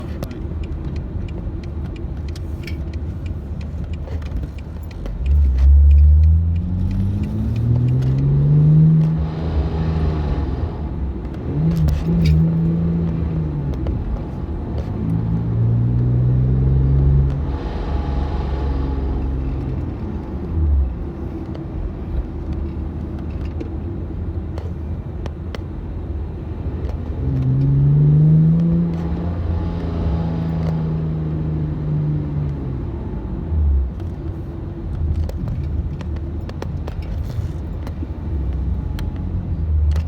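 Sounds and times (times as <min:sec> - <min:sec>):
engine revving: 0:05.3 - 0:19.8.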